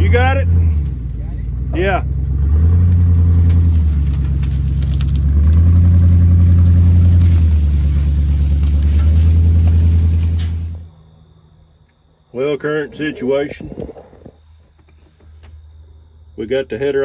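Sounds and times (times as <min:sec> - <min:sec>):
diesel engine running hard: 0:00.0 - 0:11.0.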